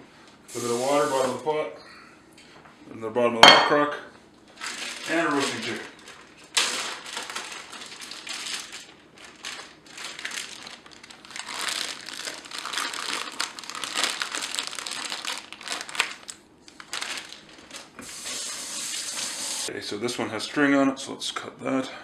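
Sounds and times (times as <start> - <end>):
plastic wrapping crinkling: 4.5 - 18.2.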